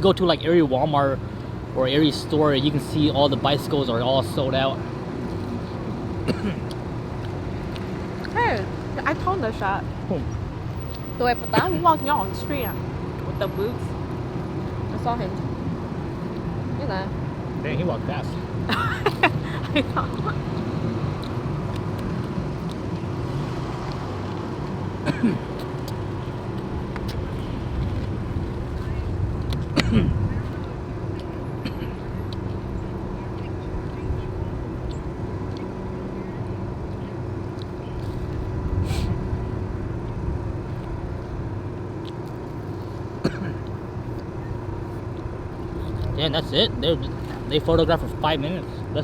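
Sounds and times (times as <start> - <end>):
car engine idling: 0.0 - 20.3
vehicle engine humming: 0.0 - 49.0.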